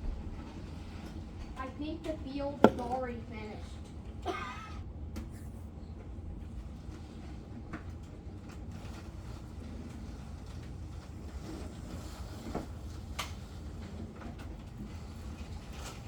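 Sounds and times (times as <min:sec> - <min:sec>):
plastic clicks and knocks: 0:02.6 - 0:03.0.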